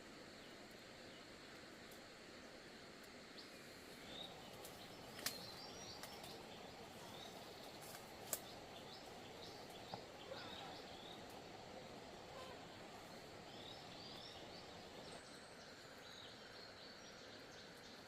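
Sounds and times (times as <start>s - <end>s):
steady hiss: 0.0s - 18.0s
small birds chirping: 3.4s - 18.0s
sharp clicks or snaps: 5.2s - 6.3s, 7.9s - 8.5s.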